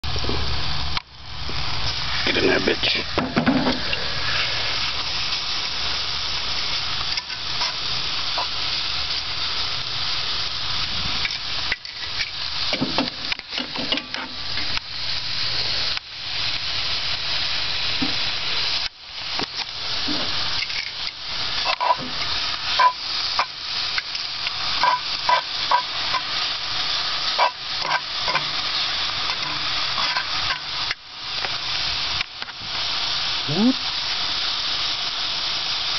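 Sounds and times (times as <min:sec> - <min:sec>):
steak sizzling in a pan: 0:00.0 - 0:35.9
utensil scraping pan: 0:21.6 - 0:23.6, 0:24.8 - 0:26.4, 0:27.4 - 0:28.6, 0:29.2 - 0:30.7.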